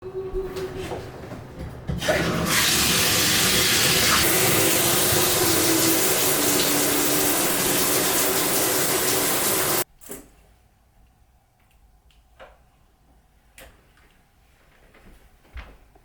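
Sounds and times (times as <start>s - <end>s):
water running from a tap: 2.0s - 9.8s.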